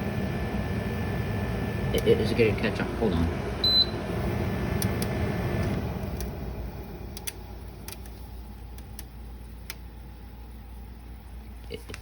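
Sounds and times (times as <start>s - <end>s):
dehumidifier humming: 0.0s - 12.0s.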